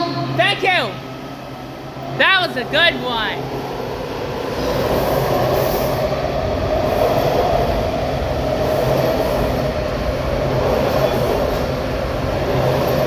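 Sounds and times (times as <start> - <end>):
train rumbling along platform: 0.0 - 13.0.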